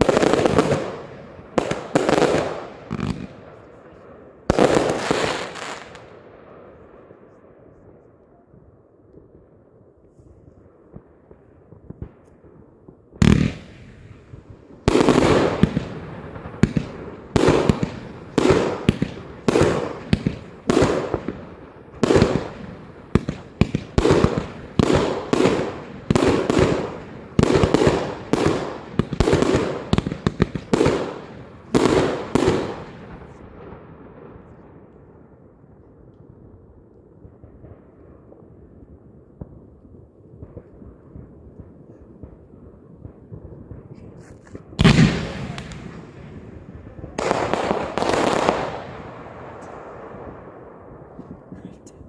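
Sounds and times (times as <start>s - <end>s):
firework shot bursts with crackle: 0.0s - 3.6s, 13.1s - 34.7s, 40.4s - 51.8s
firework bang: 44.5s - 49.8s.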